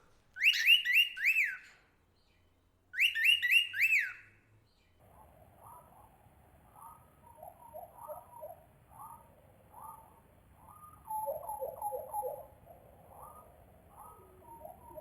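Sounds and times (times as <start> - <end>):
soft low bird calls: 0.0 - 15.0
bird whistling calls: 0.4 - 1.8, 3.0 - 4.4, 6.7 - 15.0.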